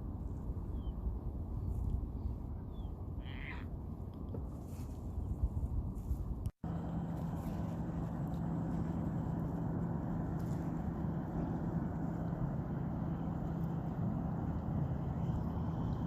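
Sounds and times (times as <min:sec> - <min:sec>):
car road and engine noise: 0:06.1 - 0:16.0.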